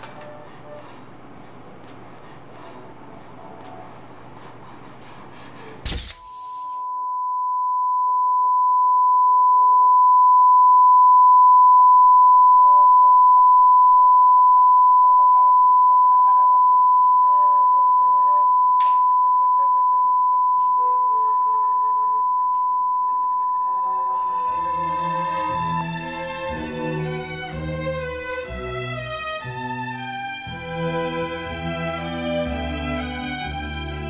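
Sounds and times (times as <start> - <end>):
faint quiet music: 0.0 - 5.8
high-pitched sine tone: 6.4 - 24.8.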